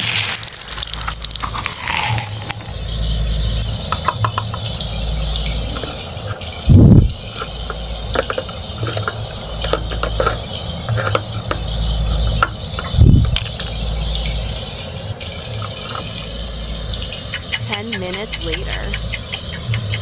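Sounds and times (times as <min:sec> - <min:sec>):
low hum: 0:00.0 - 0:17.2
loud low thumps: 0:06.7 - 0:07.2
plastic toy utensils tapping: 0:17.3 - 0:20.0.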